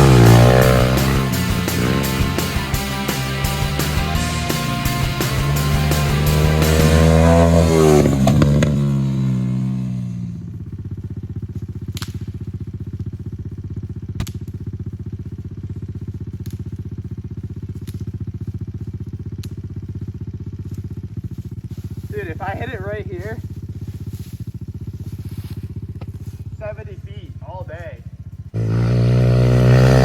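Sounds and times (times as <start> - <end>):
rock music: 0.0 - 8.3
motorbike engine idling: 0.0 - 30.0
sharp ticks: 16.3 - 16.9.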